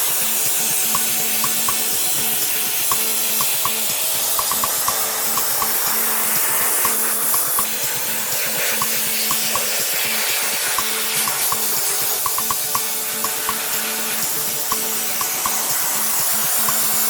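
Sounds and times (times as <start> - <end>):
background music with beat: 0.0 - 17.0
spraying hiss: 0.0 - 17.0.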